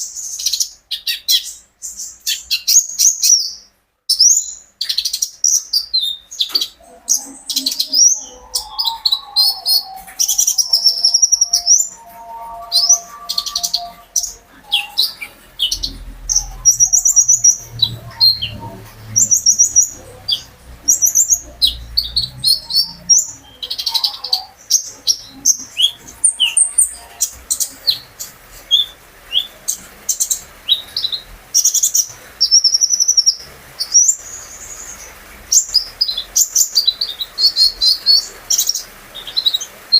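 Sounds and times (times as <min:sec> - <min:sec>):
songbird chirping and trilling: 0:00.0 - 0:39.9
faint low rumble: 0:06.8 - 0:23.8.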